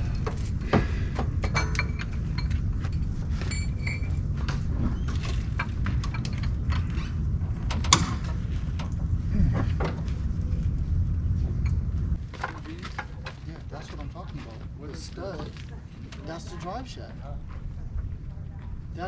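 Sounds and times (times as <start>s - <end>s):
hand tools clinking on metal: 0.0s - 4.5s
steady low rumble: 0.0s - 19.0s.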